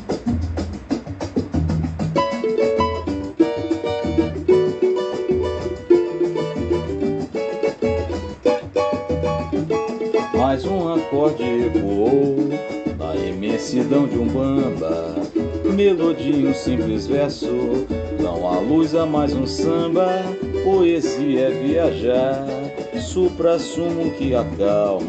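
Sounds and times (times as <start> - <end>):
cavaquinho strumming melody: 0.0 - 25.0
light percussion: 0.0 - 25.0
person singing: 10.2 - 25.0.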